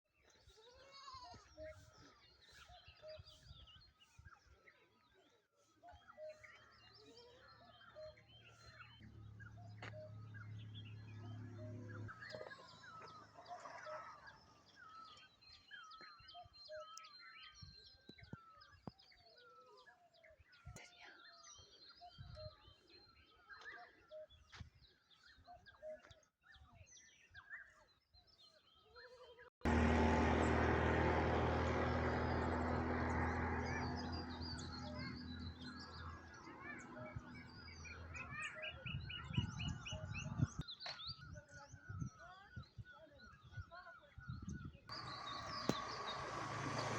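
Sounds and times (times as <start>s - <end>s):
small birds chirping: 0.1s - 46.9s
loud rumbling with low hum: 29.7s - 35.9s.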